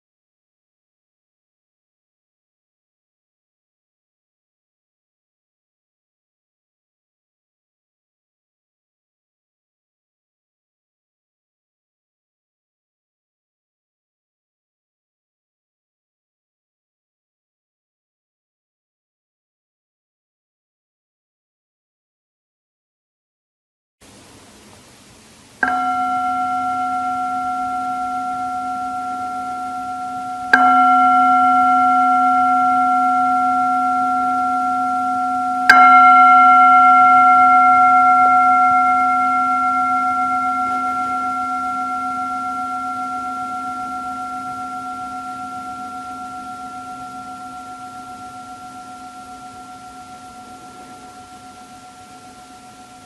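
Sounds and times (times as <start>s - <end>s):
singing bowl ringing: 25.6s - 53.0s.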